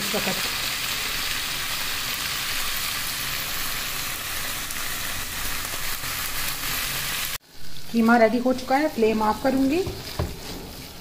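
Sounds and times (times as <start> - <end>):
mince sizzling in a pan: 0.0 - 11.0.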